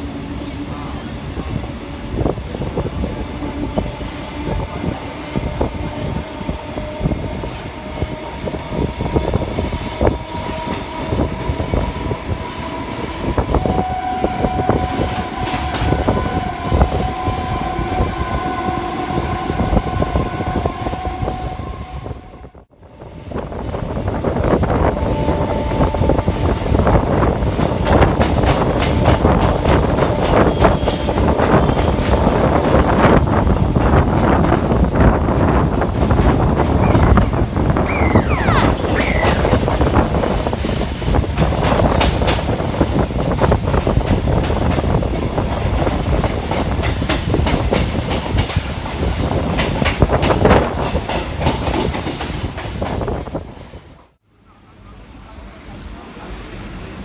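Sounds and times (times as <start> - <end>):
electric train whine: 5.4 - 41.2.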